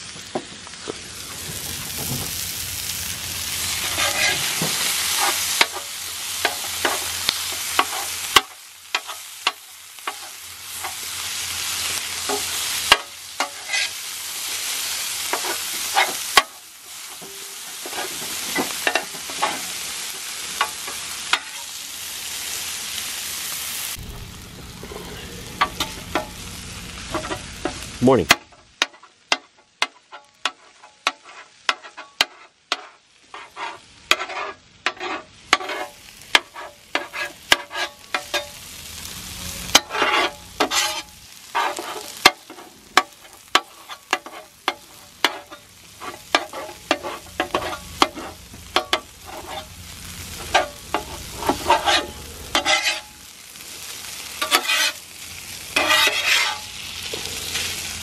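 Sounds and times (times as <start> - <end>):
food sizzling: 0.0 - 58.0
utensil scraping a griddle: 3.6 - 11.2, 11.8 - 21.8, 27.0 - 53.3, 53.9 - 58.0.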